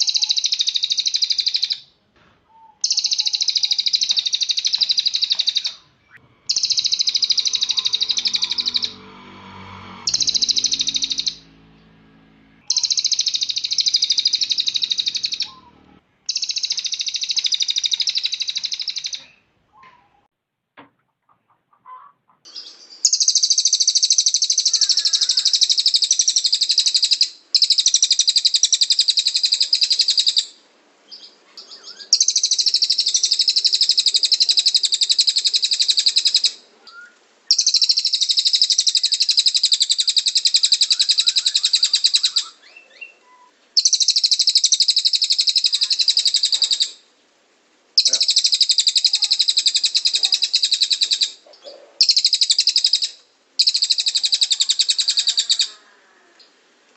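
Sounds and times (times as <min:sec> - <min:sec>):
bird singing rapid trills: 0:00.0 - 0:01.8, 0:02.7 - 0:19.4, 0:22.5 - 0:47.0, 0:48.0 - 0:51.4, 0:52.0 - 0:55.8.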